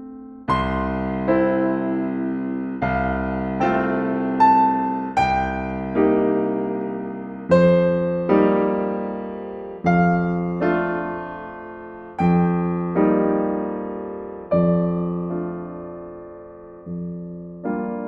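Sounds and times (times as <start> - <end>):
gentle solo piano: 0.0 - 18.0.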